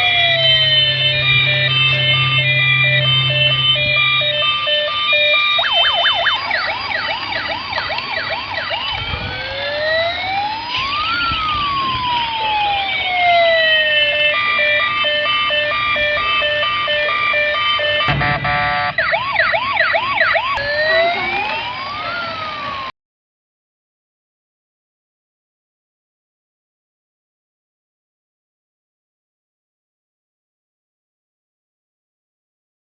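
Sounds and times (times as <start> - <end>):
toy police car sirens: 0.0 - 22.9.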